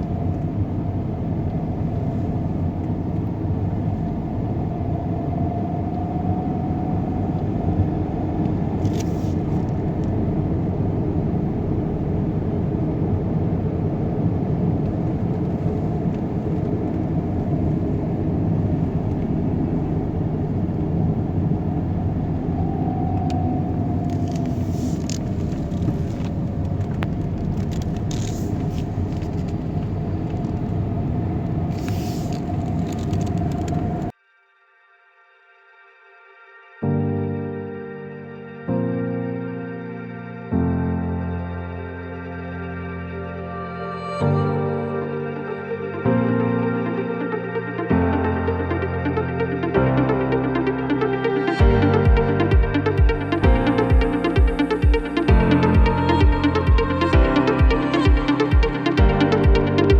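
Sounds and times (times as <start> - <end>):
faint tone sliding down: 0.0 - 27.1
vehicle rumble: 0.0 - 34.2, 38.8 - 59.9.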